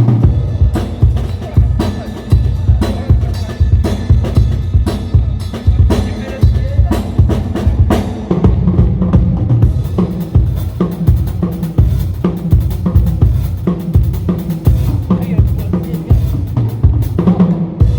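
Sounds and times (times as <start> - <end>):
bass drum strokes: 0.0 - 17.9.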